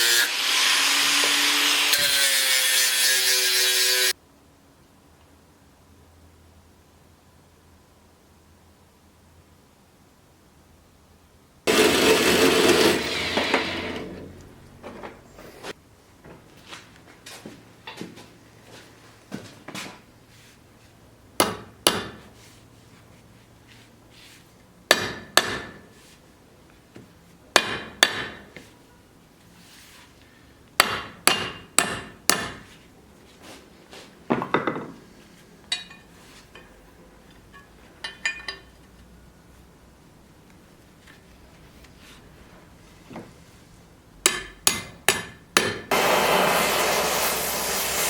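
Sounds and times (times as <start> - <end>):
hammer striking metal: 21.4 - 22.2, 24.9 - 25.9, 27.6 - 28.5, 30.8 - 32.6, 44.2 - 46.1.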